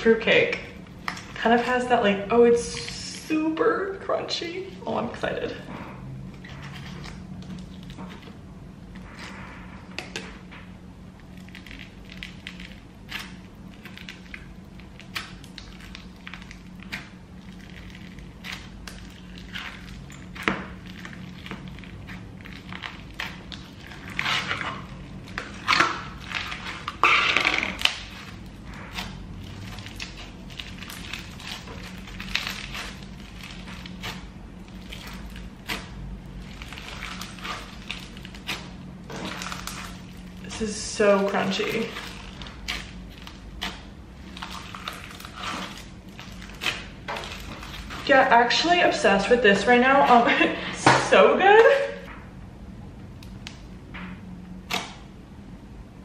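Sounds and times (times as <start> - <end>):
steady low hum: 0.0 - 56.0
crunchy slime squeezed by hand: 11.2 - 40.5.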